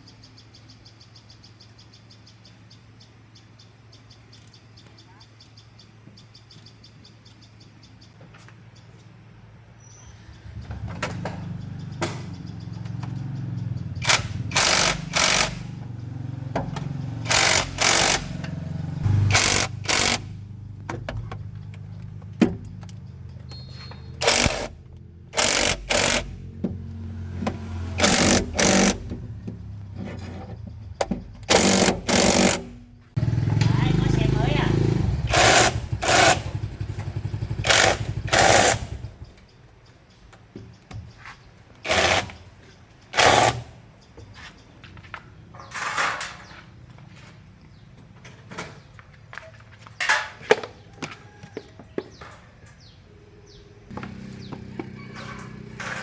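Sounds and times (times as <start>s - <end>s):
machine humming: 12.6s - 20.7s, 24.2s - 29.5s
power tool bursts: 14.0s - 15.8s, 16.8s - 20.4s, 24.2s - 24.8s, 25.4s - 26.4s, 27.6s - 29.2s, 31.4s - 39.2s, 41.8s - 42.4s, 43.1s - 43.8s.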